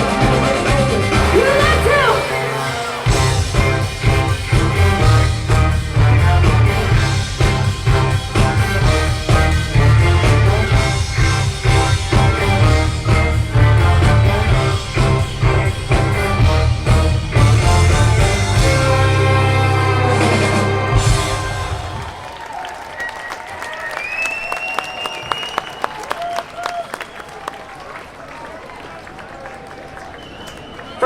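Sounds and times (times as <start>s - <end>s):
steady drum beat: 0.0s - 22.2s
heavy bass: 0.0s - 22.3s
horns playing: 0.0s - 22.4s
big band playing: 0.0s - 22.6s.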